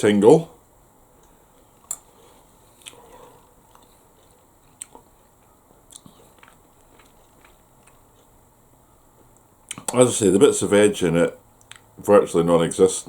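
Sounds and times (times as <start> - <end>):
quiet chewing: 1.2 - 10.0.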